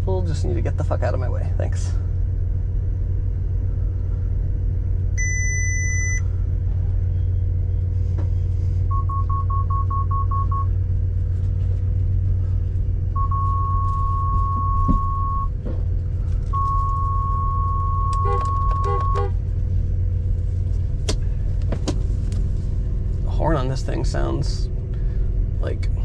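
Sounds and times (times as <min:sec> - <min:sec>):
car rumbling: 0:00.0 - 0:26.0
long steady warning tone: 0:01.8 - 0:20.4
parking sensor beeps: 0:05.2 - 0:06.3, 0:08.9 - 0:10.8, 0:13.1 - 0:15.6, 0:16.5 - 0:19.3.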